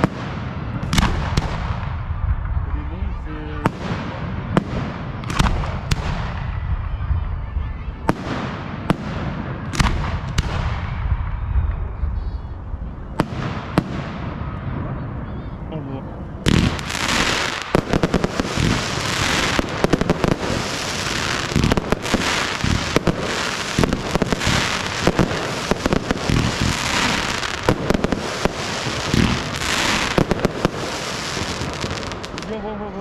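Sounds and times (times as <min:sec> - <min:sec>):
firework bangs: 0:00.0 - 0:15.3, 0:16.4 - 0:33.0
firework crackling hiss: 0:16.5 - 0:33.0.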